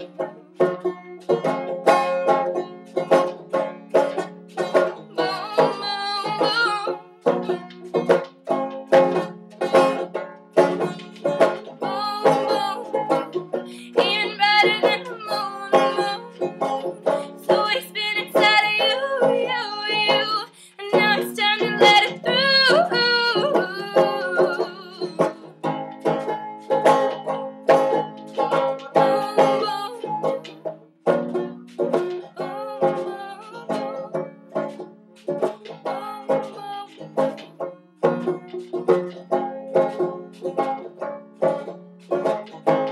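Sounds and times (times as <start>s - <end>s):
banjo picking fast notes: 0.0s - 42.9s
person singing long notes: 5.2s - 7.0s, 11.7s - 25.5s, 28.4s - 30.4s, 32.4s - 34.1s, 35.8s - 37.1s.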